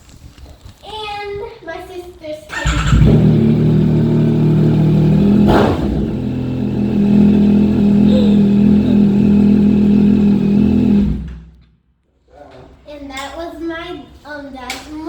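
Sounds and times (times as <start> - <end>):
motorcycle engine running: 2.5 - 11.4.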